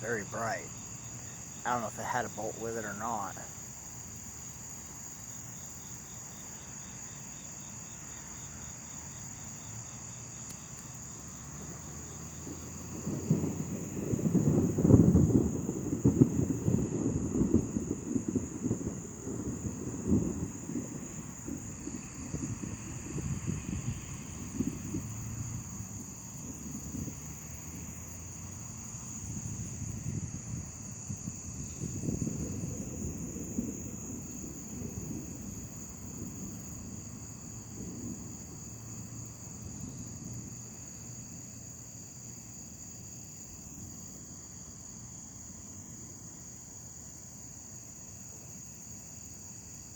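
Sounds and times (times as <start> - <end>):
distant thunder rumbling: 0.0 - 5.1, 11.1 - 41.8
night insects chirring: 0.0 - 49.9.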